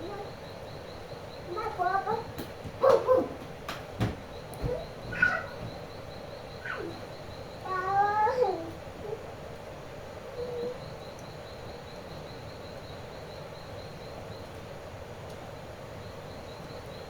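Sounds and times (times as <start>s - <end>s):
steady background hiss: 0.0s - 17.0s
animal call: 1.5s - 3.4s, 4.6s - 5.9s, 6.6s - 9.3s.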